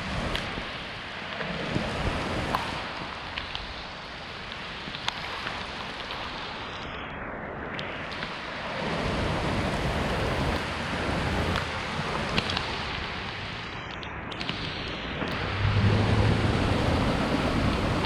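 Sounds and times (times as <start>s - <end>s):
close raindrops striking: 0.2s - 6.8s, 10.3s - 18.0s
heavy rain pouring: 8.4s - 13.8s, 15.3s - 18.0s
low rush: 15.3s - 18.0s.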